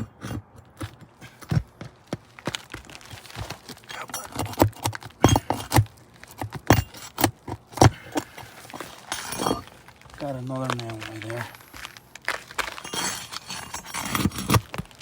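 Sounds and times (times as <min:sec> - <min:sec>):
hand tool knocking on shingles: 0:00.0 - 0:09.7.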